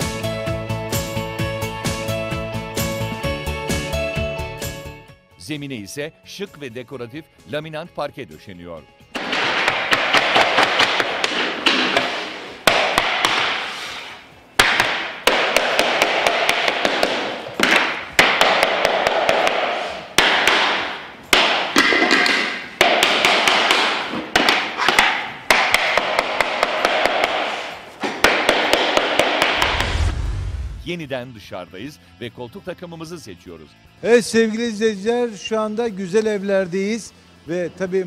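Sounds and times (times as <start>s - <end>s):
hammer tapping floor planks: 9.2s - 29.9s.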